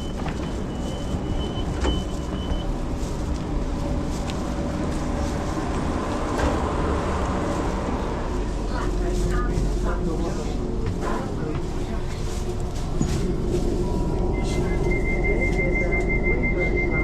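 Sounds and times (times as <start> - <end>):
electric train rumble: 0.0 - 17.0.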